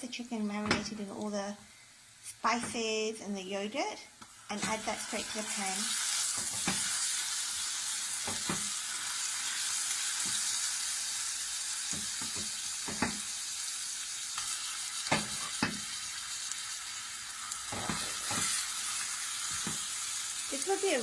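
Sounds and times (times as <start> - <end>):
spoon knocking and scraping pan: 0.6 - 1.0, 2.6 - 2.8, 6.3 - 6.9, 8.2 - 8.8, 10.2 - 10.5, 11.8 - 13.4, 14.4 - 16.0, 17.7 - 20.0
chicken sizzling in oil: 4.3 - 21.0.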